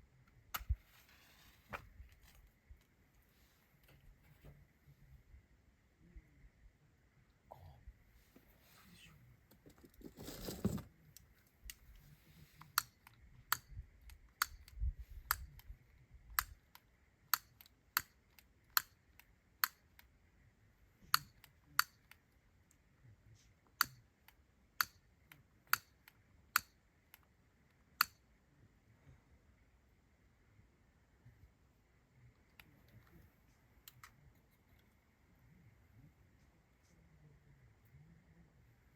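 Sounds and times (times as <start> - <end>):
rustling noise: 0.7 - 2.6, 9.6 - 11.0.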